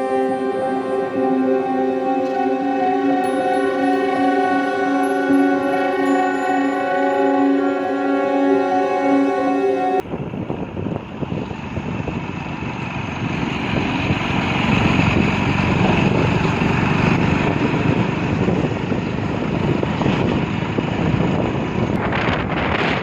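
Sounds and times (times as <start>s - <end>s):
wind and road noise: 10.1s - 23.0s.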